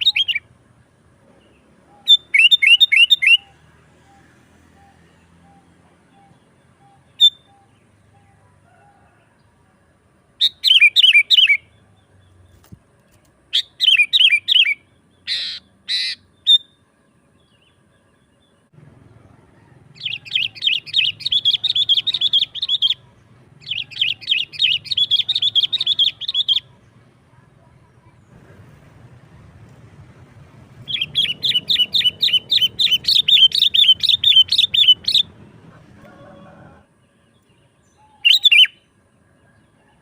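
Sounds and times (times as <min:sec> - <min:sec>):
bird whistled notes: 0:02.0 - 0:03.5, 0:30.8 - 0:35.3, 0:38.0 - 0:38.8
bird rapid chattering: 0:13.6 - 0:16.6, 0:20.0 - 0:26.9, 0:30.8 - 0:35.4
bird harsh rasping calls: 0:13.6 - 0:16.7, 0:19.9 - 0:26.8, 0:30.8 - 0:35.3.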